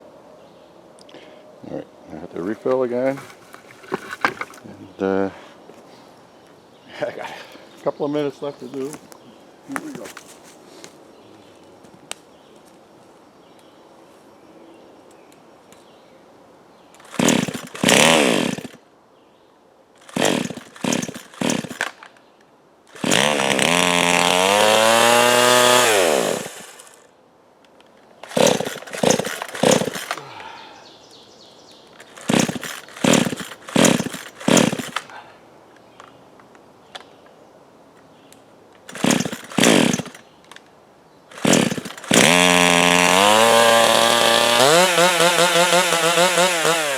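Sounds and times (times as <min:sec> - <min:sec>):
chainsaw revving: 0:17.0 - 0:18.8, 0:20.0 - 0:21.9, 0:22.9 - 0:27.1, 0:28.2 - 0:30.2, 0:32.0 - 0:35.1, 0:38.9 - 0:40.2, 0:41.3 - 0:46.9.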